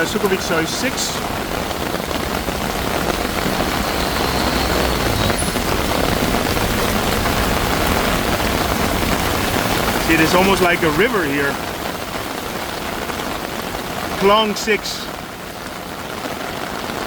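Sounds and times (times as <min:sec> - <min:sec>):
vehicle engine rumble: 0:00.0 - 0:11.8
heavy rain pouring: 0:00.0 - 0:17.0.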